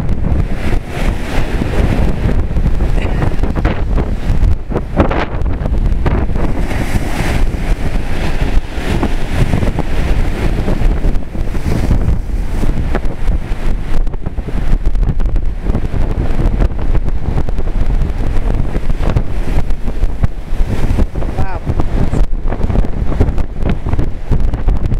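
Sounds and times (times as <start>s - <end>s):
surf washing onto beach: 0.0s - 24.9s
wind buffeting microphone: 0.0s - 24.9s.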